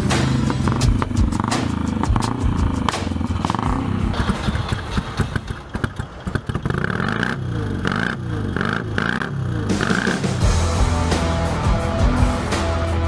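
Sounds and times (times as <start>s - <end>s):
racing motorcycles passing by: 0.0s - 4.4s, 5.2s - 10.4s.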